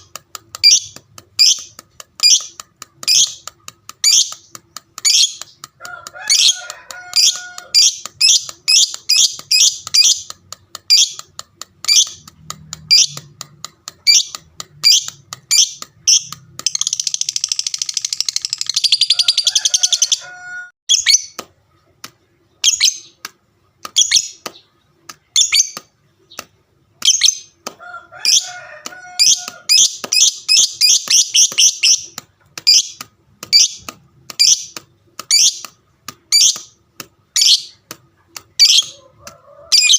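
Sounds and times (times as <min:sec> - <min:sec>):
rattle of bird calls: 0:00.0 - 0:21.4.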